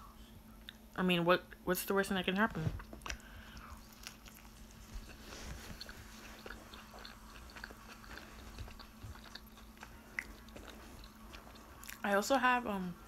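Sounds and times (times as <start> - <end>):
mouth chewing food: 2.8 - 12.2.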